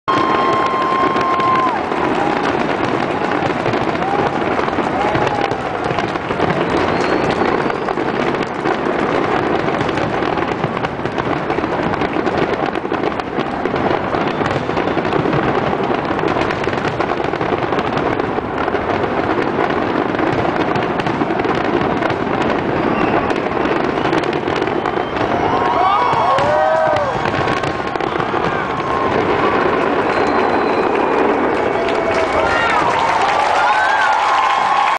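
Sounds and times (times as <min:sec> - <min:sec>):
fireworks bursting: 0:00.1 - 0:34.9.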